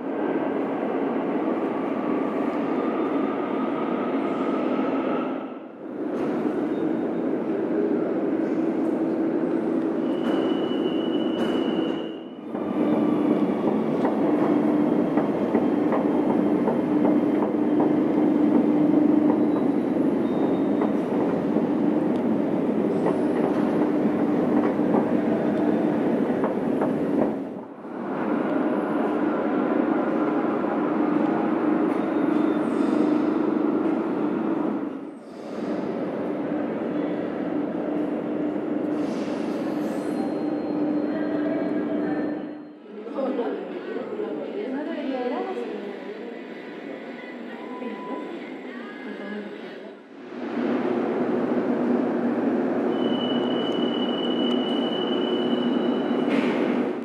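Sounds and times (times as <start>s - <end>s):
train rumbling on rails: 0.0s - 42.7s, 49.4s - 57.0s
wheel squeal: 10.0s - 12.3s, 52.9s - 56.3s.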